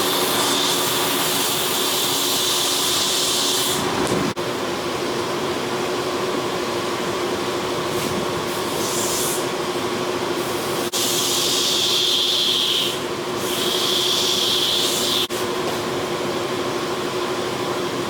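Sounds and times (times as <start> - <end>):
hiss: 10.4 - 15.3.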